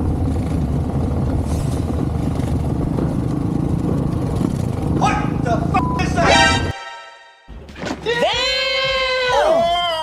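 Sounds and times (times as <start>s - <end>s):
dirt bike engine running: 0.0s - 6.7s.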